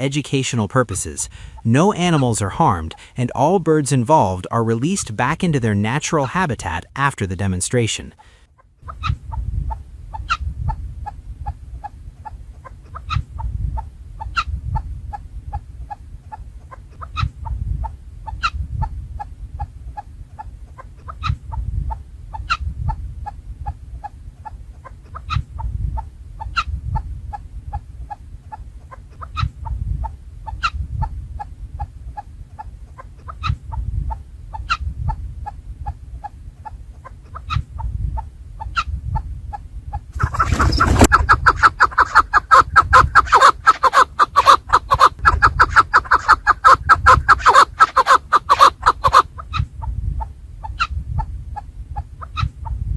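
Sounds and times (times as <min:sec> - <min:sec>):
partridges clucking: 0:40.2 - 0:49.2.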